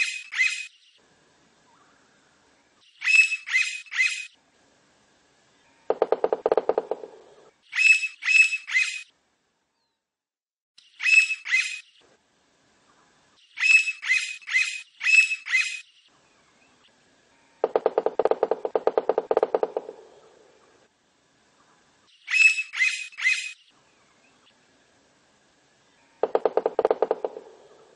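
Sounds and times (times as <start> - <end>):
woodpecker sharp high calls: 0.0 - 0.8, 3.0 - 4.4, 5.9 - 9.1, 10.9 - 11.9, 13.6 - 15.9, 17.6 - 20.4, 22.2 - 23.7, 26.1 - 27.9
woodpecker rapid rattle: 5.9 - 9.0, 17.6 - 20.4, 26.2 - 27.9.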